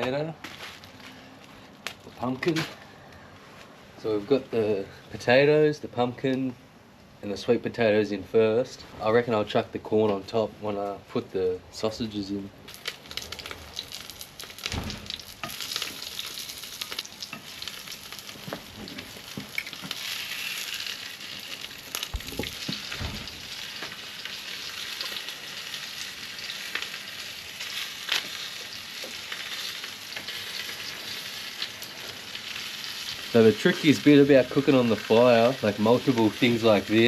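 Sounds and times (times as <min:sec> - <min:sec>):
sausages sizzling in a pan: 0:12.7 - 0:37.0.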